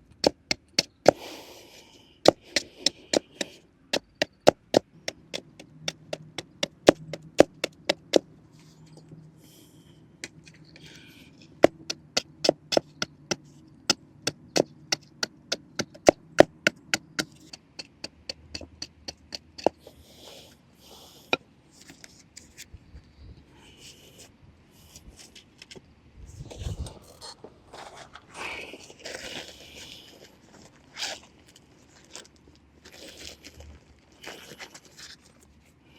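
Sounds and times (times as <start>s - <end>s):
knife chopping on wooden board: 2.2s - 8.3s, 11.6s - 19.8s.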